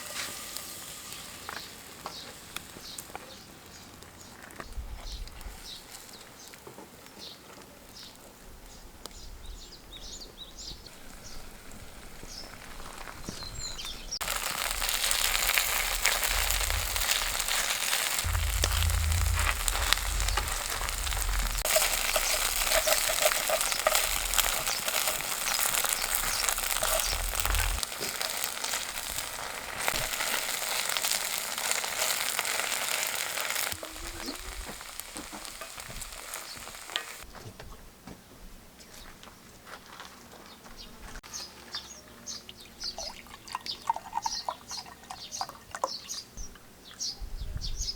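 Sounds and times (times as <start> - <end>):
batter sizzling in oil: 0.0 - 3.2, 11.2 - 37.3.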